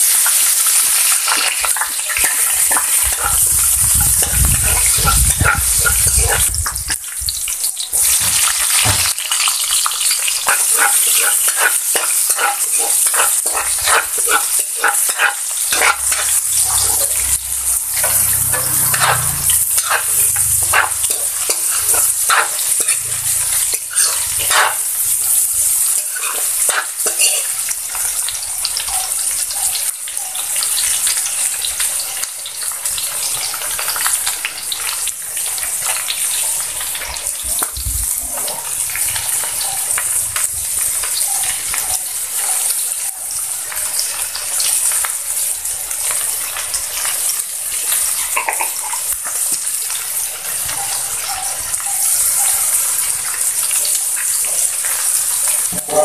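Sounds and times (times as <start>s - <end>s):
metal spatula scraping a pan: 0.0s - 7.2s, 8.0s - 28.3s, 43.8s - 56.0s
vegetables sizzling in a wok: 0.0s - 56.0s.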